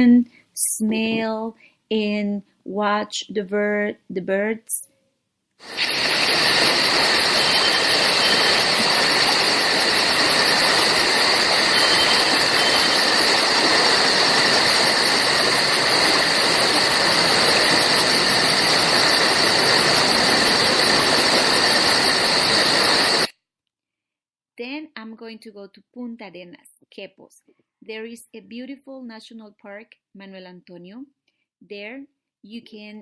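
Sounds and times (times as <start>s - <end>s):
insects chorus pulsing: 5.6s - 23.3s.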